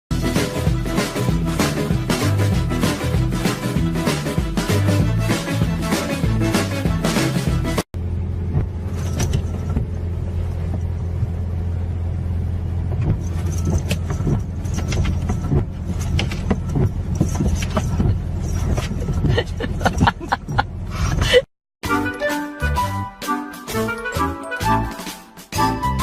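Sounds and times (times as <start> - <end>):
low mechanical hum: 8.0 - 21.3.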